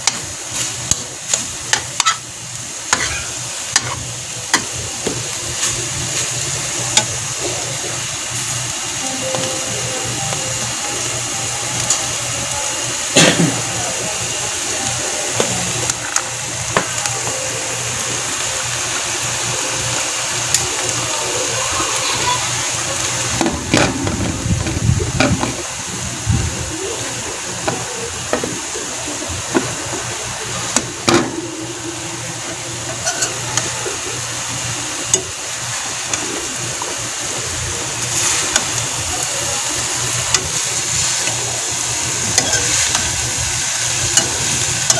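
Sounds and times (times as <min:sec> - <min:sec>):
food sizzling in a frying pan: 0:00.0 - 0:44.9
metal spatula scraping a pan: 0:33.0 - 0:33.4.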